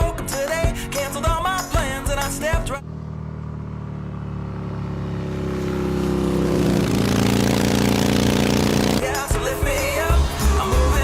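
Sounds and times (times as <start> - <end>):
motorcycle engine running: 1.3 - 9.1.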